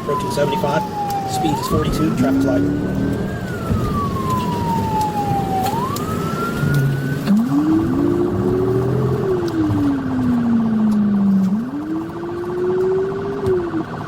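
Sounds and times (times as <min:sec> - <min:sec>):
engine and road noise: 0:00.0 - 0:14.0
police siren wailing: 0:00.0 - 0:14.0.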